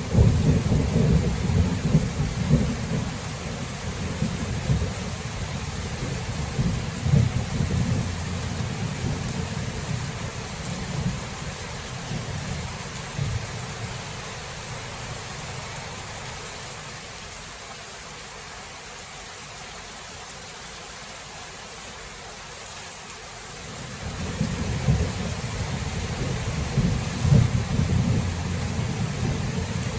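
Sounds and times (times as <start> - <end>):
thunder rumbling: 0.0 - 15.0, 23.7 - 29.9
rain hiss: 0.0 - 29.9.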